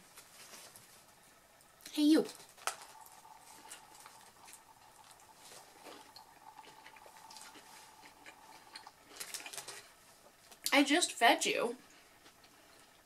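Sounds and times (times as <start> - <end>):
faint wet chewing: 2.3 - 10.8
paper wrapper crinkling: 9.0 - 10.6.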